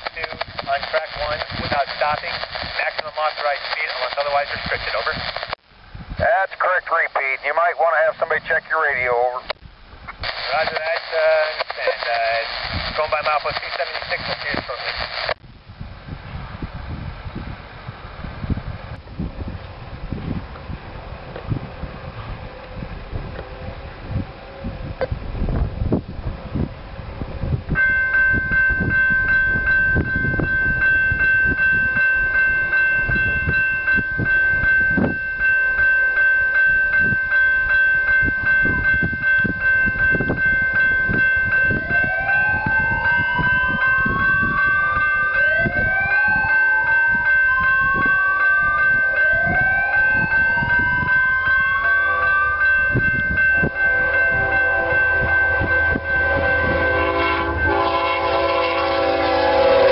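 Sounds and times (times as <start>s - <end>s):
warning siren: 27.8s - 59.9s.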